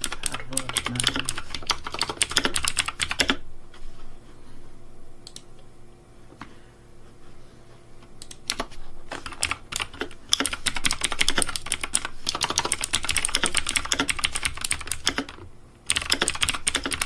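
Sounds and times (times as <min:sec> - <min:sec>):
rapid typing on keyboard: 0:00.0 - 0:03.4, 0:08.2 - 0:17.0.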